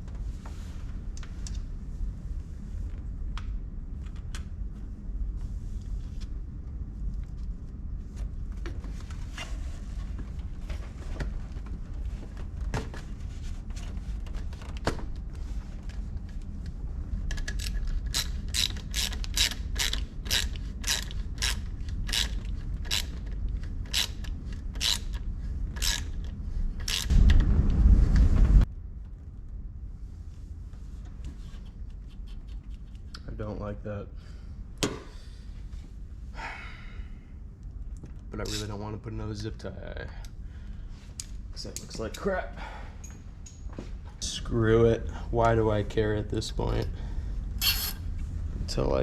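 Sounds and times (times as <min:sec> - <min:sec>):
ratchet wrench clicking: 0:17.5 - 0:23.2, 0:23.9 - 0:25.2, 0:25.8 - 0:26.2, 0:26.8 - 0:27.1, 0:47.6 - 0:48.0
low rumble: 0:25.2 - 0:31.1
loud thump: 0:27.1 - 0:28.6.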